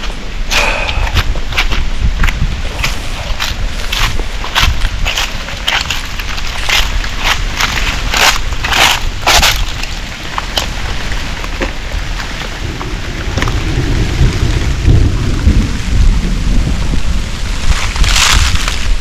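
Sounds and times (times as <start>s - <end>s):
steady rain: 0.0s - 19.0s
thunder rumbling: 10.2s - 19.0s.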